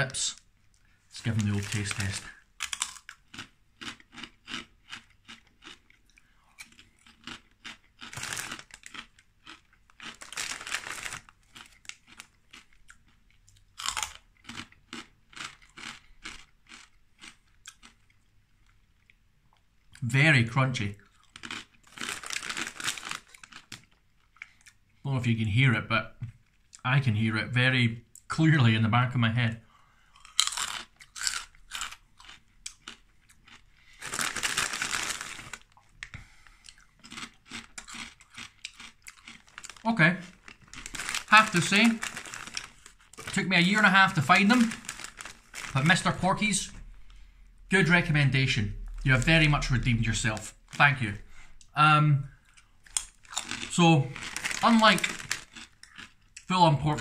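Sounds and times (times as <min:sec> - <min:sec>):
crunchy snack being chewed: 0:01.2 - 0:19.9, 0:21.0 - 0:24.9, 0:30.1 - 0:46.1, 0:52.4 - 0:56.5.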